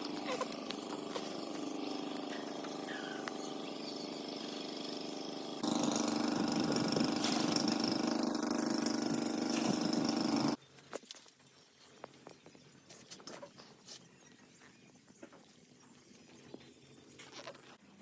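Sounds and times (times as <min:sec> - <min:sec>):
machine engine humming: 0:00.0 - 0:10.6.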